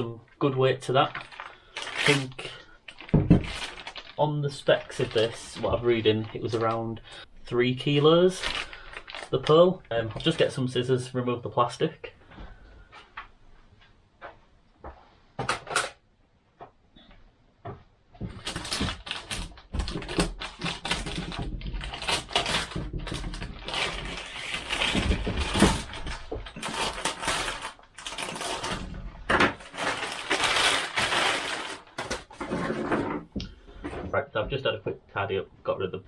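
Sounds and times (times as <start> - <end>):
plastic wrapper crinkling: 0.8 - 7.1, 8.2 - 10.7, 18.3 - 32.6.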